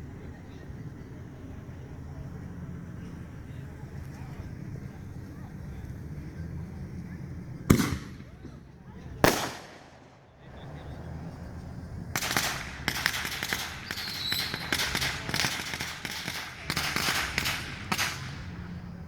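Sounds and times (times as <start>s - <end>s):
firework bang echoing: 7.7s - 8.6s, 9.2s - 10.5s, 12.2s - 18.5s
rapid crackling of firework pops: 7.7s - 10.5s, 12.1s - 18.8s
firework whistle: 12.2s - 18.2s.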